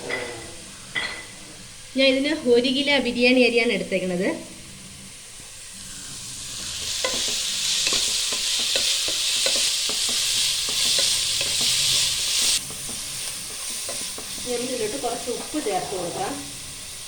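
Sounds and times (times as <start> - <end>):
onions sizzling in hot oil: 5.1 - 17.0
spatula scraping pan: 5.9 - 15.5.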